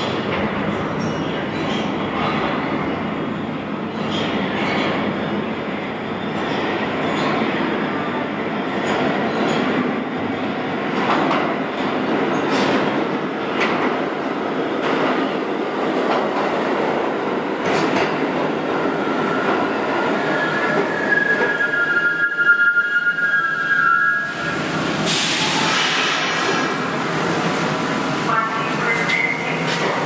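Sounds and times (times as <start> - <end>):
subway train rumbling: 0.0 - 30.0
high wheel squeal: 20.2 - 24.6.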